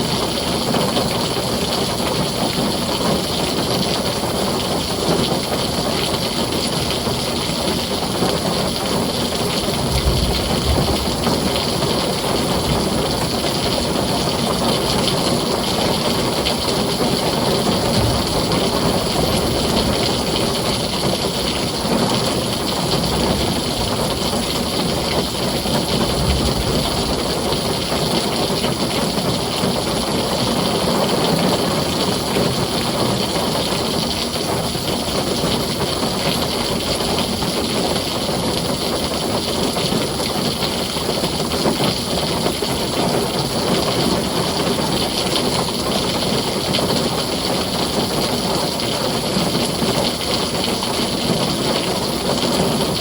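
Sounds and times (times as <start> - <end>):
heavy rain falling: 0.0 - 53.0
distant thunder rumbles: 8.1 - 32.7.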